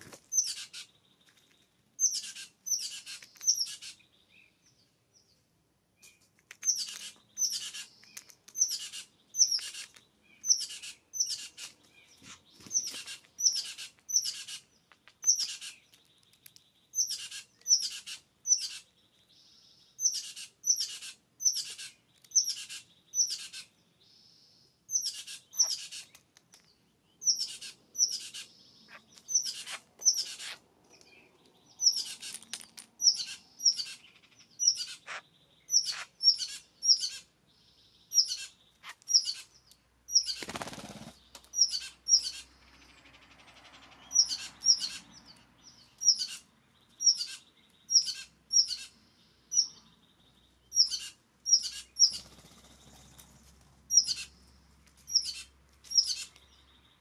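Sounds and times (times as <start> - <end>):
bird chipping calls: 0.1 - 4.6, 6.0 - 37.4, 38.0 - 57.0
wingbeats: 40.2 - 41.9, 51.6 - 53.4.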